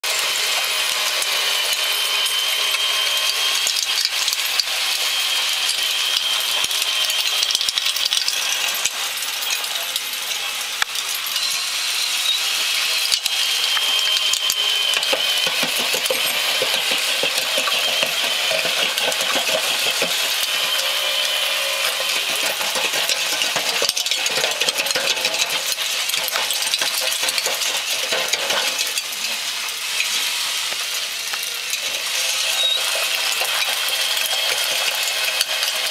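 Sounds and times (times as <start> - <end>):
faint drive motor whine: 0.2 - 35.9
buckets clattering in gritty soil: 15.0 - 30.2.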